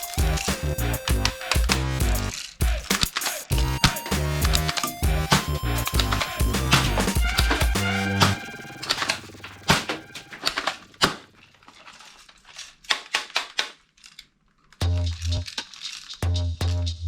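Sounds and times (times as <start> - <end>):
background music: 0.0 - 2.3, 3.5 - 10.5
toy gun plastic clicks: 10.4 - 14.8, 15.5 - 16.2.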